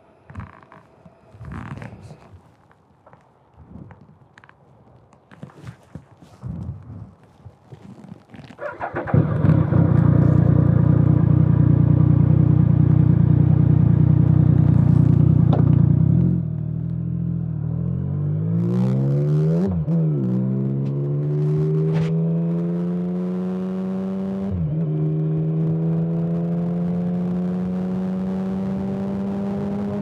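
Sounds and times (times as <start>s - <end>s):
motorcycle engine: 8.5s - 30.0s.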